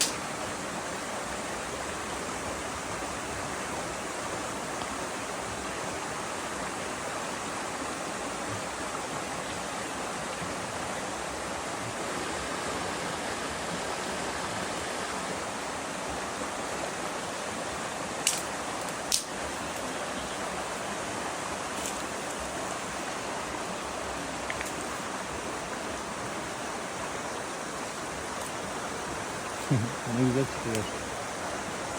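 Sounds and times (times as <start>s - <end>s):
running water: 0.0s - 31.9s.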